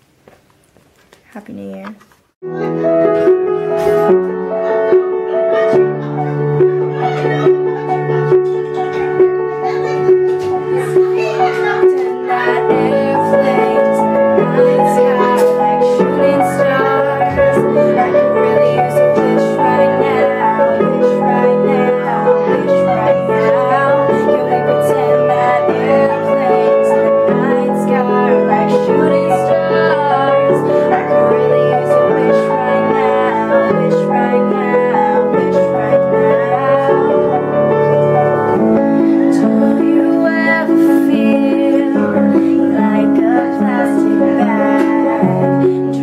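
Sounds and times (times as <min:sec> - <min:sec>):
piano accompaniment: 0:02.4 - 0:46.0
woman singing: 0:10.0 - 0:46.0.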